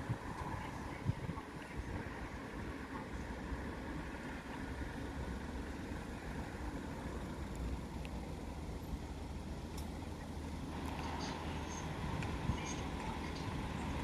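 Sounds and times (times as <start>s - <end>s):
train diesel engines humming: 0.0s - 14.0s.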